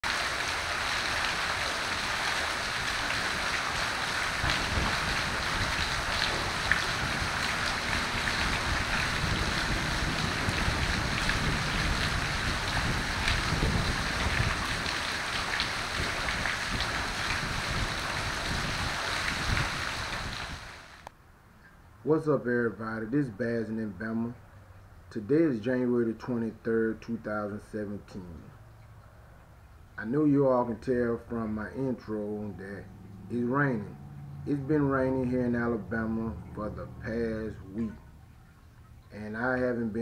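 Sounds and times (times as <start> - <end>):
steady rain falling: 0.0 - 21.1
raindrops ticking: 0.1 - 18.6, 28.1 - 30.1, 32.6 - 39.2.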